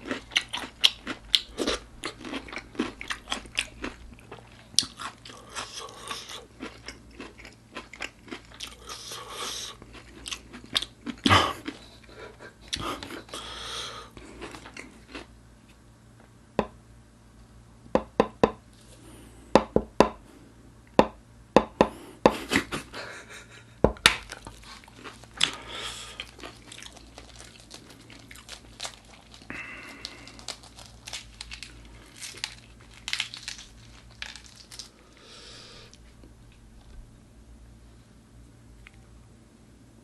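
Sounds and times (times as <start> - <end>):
crunching and chewing food: 0.0 - 16.4, 22.3 - 37.1, 38.8 - 39.2.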